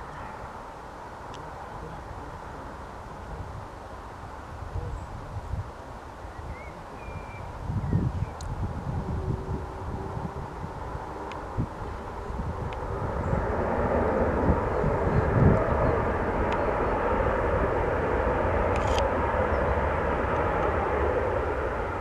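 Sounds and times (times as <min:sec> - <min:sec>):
jet airliner passing: 0:06.1 - 0:22.0.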